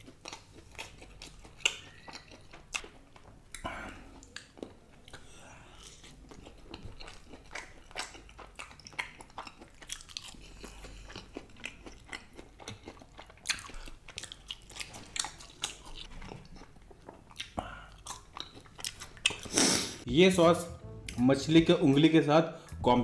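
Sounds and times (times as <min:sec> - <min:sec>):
crunchy chewing: 0:00.0 - 0:19.9
wet mouth sounds: 0:17.1 - 0:20.1.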